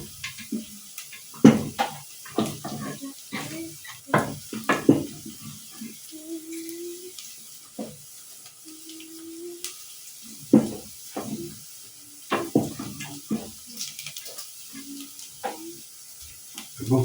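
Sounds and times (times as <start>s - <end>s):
onions and meat sizzling in oil: 0.0s - 17.0s
spoon knocking against pot: 3.9s - 5.2s, 10.5s - 11.5s, 12.3s - 13.5s.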